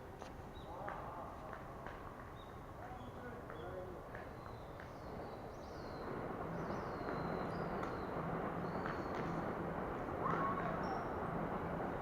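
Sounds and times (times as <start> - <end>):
traffic rumble: 0.0 - 12.0
birds chirping: 2.3 - 9.5.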